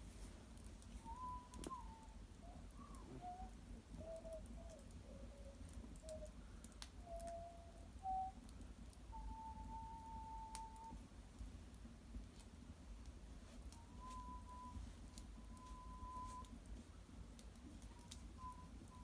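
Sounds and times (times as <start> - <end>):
wood fire crackling: 0.0 - 19.0
soft whistled notes: 0.9 - 6.4, 7.0 - 11.0, 13.6 - 16.6, 17.8 - 19.0.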